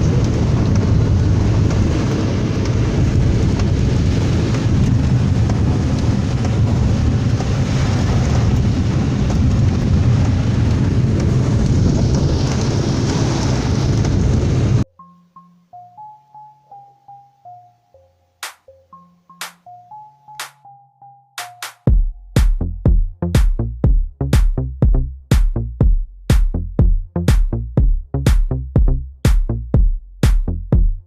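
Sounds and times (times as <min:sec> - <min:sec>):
gusting wind: 0:00.0 - 0:14.8
heavy rain: 0:00.0 - 0:14.8
deep rumble: 0:00.0 - 0:14.9, 0:21.9 - 0:31.0.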